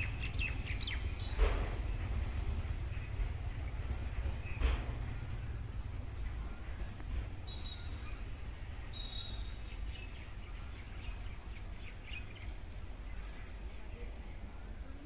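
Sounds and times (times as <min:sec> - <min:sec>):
steady low rumble: 0:00.0 - 0:08.9
high bird chirps: 0:08.9 - 0:09.9.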